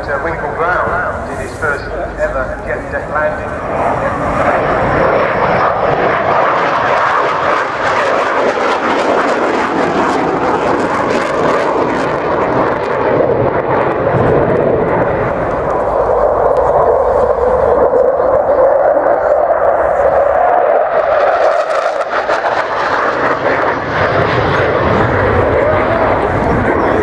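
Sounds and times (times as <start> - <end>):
aircraft flying over: 0.0 - 27.0.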